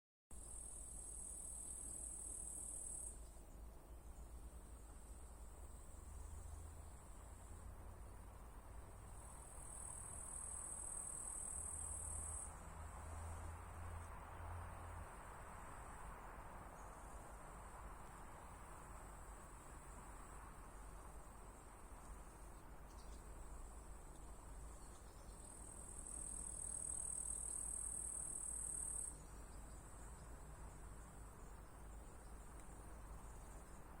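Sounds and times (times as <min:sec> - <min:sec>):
insects trilling: 0:24.6 - 0:30.2.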